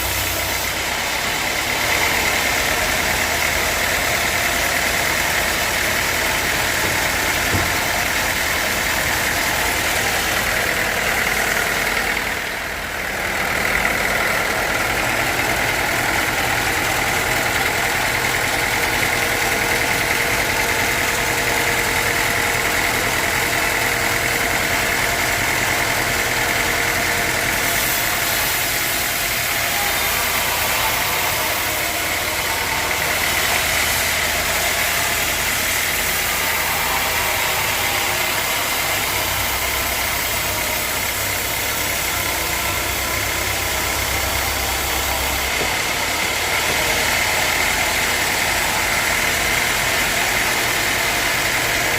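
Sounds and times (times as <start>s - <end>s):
sawmill machinery running: 0.0s - 51.9s.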